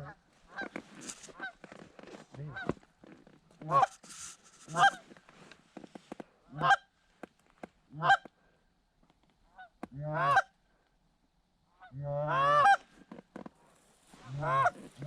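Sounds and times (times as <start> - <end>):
goose honking: 0.0 - 1.6, 3.6 - 5.1, 6.5 - 6.8, 7.9 - 8.3, 9.6 - 10.5, 11.8 - 12.9, 14.2 - 15.0.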